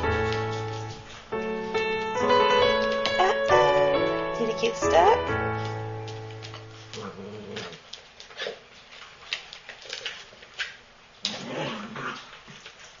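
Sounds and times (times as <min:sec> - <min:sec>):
puppy vocal sound: 0:06.8 - 0:08.6.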